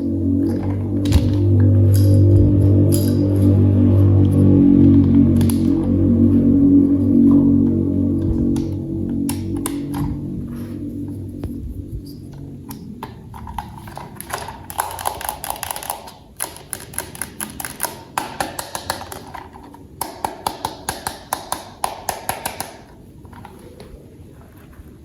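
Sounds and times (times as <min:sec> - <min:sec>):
plastic toy parts clicking: 0:12.7 - 0:23.6.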